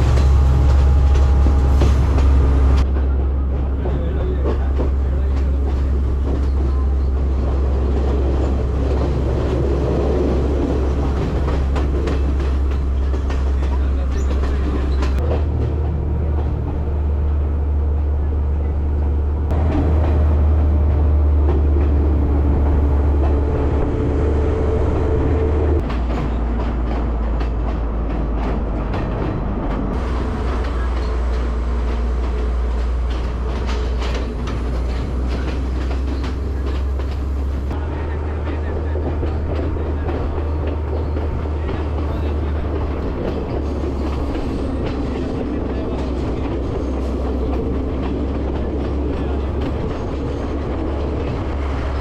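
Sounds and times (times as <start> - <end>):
train rumble: 0.0 - 52.0
wheels clicking over rail joints: 25.8 - 52.0.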